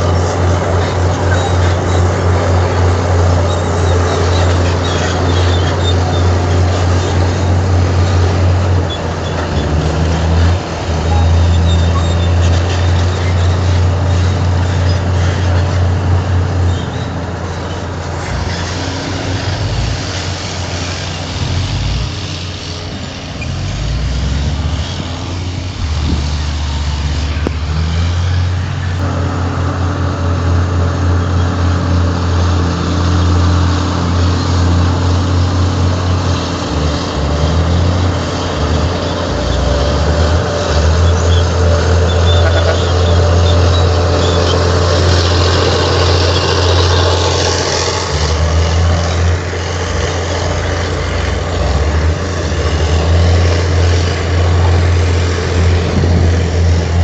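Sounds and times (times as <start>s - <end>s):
heavy diesel engine under load: 0.0s - 57.0s.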